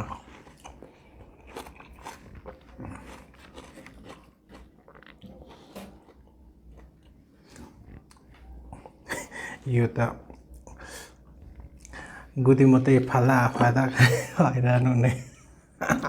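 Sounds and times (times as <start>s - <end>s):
person chewing crunchy food: 0.0s - 12.4s.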